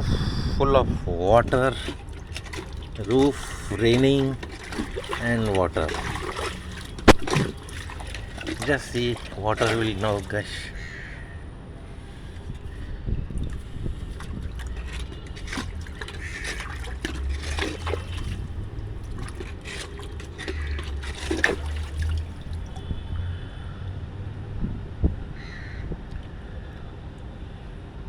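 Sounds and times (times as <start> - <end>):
rainwater gushing from a drain: 1.4 - 11.0, 12.1 - 23.0
crows cawing: 10.5 - 11.4, 25.4 - 25.9.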